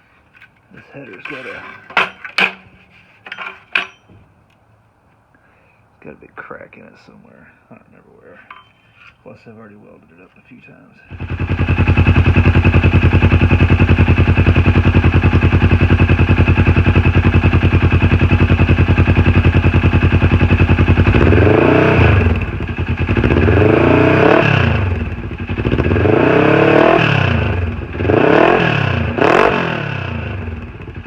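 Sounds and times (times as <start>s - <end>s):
engine idling and revving: 11.1s - 31.0s.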